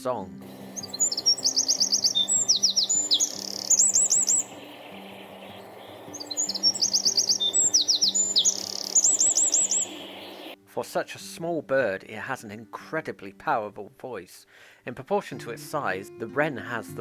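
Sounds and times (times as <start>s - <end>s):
wren singing trills: 0.0s - 10.6s.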